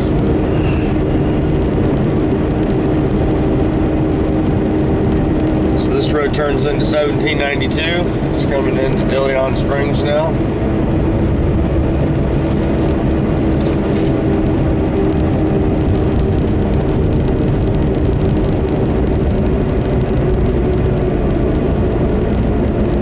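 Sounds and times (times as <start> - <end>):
car engine drone: 0.0 - 23.0
road noise: 0.0 - 23.0
steady hum: 0.0 - 23.0.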